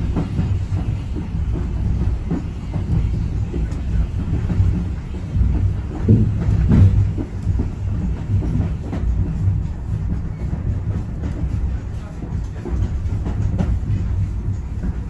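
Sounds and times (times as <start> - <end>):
train rumbling on track: 0.0 - 15.0
wheels clicking over rails: 0.0 - 15.0.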